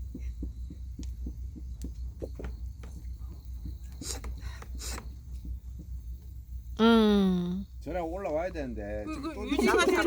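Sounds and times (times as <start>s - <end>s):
hand fan puffing air: 2.2s - 6.2s.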